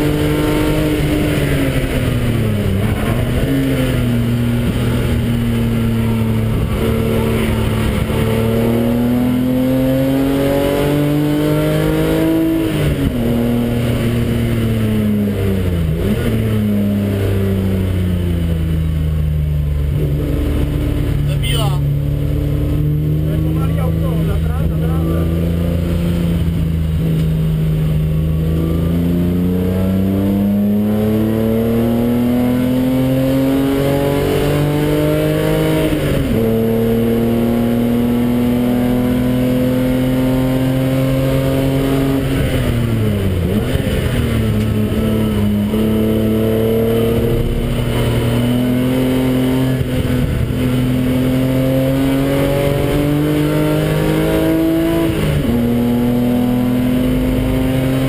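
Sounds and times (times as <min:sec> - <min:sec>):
car engine at full throttle: 0:00.0 - 0:58.0.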